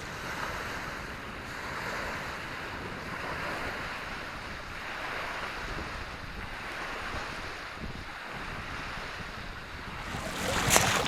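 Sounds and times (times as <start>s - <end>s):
wind buffeting microphone: 9.8s - 11.0s
surf washing on shore: 9.9s - 11.0s.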